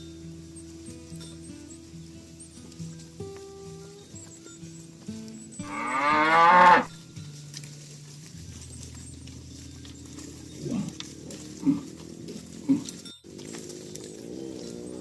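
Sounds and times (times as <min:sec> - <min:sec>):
cattle mooing: 0:05.6 - 0:07.0, 0:09.8 - 0:15.0.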